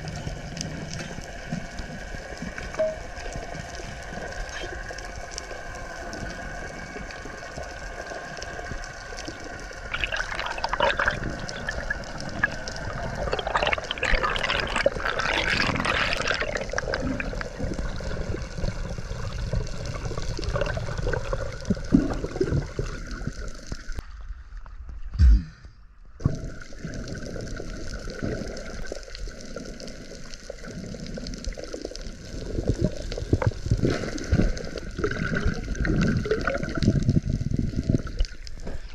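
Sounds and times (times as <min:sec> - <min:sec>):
underwater water wash and bubbling: 0:00.0 - 0:25.2, 0:26.1 - 0:38.9
low thump: 0:25.2 - 0:25.8.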